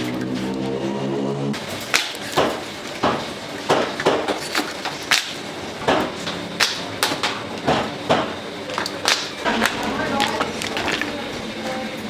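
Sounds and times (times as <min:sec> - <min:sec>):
cleaver chopping on wooden board: 0:01.9 - 0:06.8.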